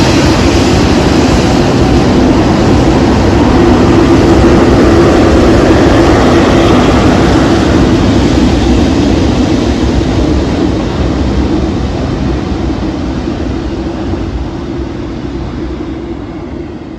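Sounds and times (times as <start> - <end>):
jet engines at takeoff: 0.0 - 16.9.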